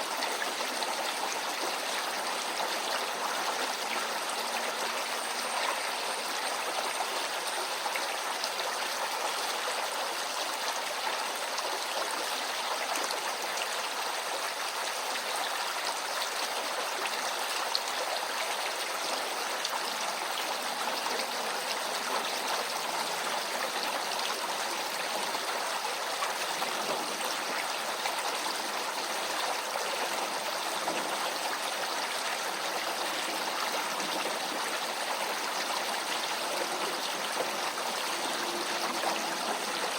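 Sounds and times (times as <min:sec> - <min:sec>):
brook flowing: 0:00.0 - 0:39.9.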